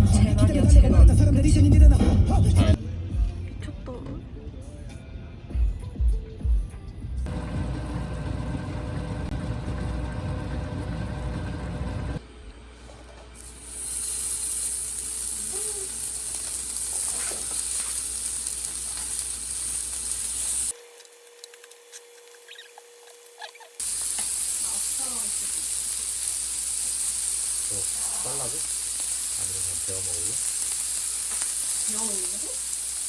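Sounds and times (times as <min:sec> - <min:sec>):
food sizzling in a hot pan: 0:13.4 - 0:20.8, 0:23.8 - 0:33.0.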